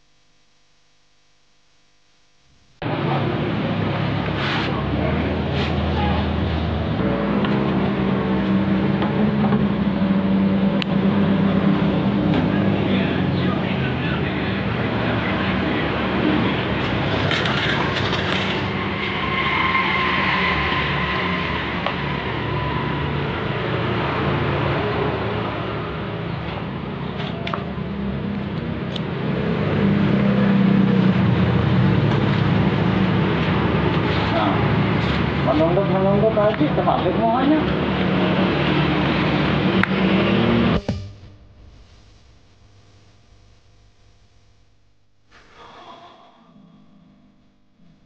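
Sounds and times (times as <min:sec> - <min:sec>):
motor humming drone: 0:38.0 - 0:45.3.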